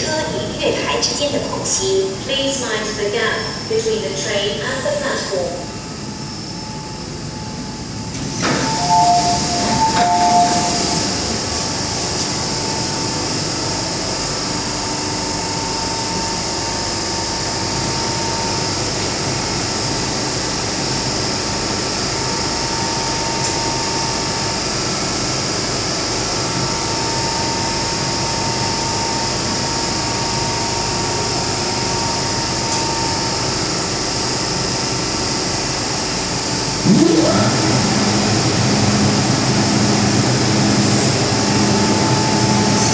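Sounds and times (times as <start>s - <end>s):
train ventilation hum and hiss: 0.0s - 36.9s, 37.8s - 42.9s
two-tone door chime: 8.4s - 11.2s.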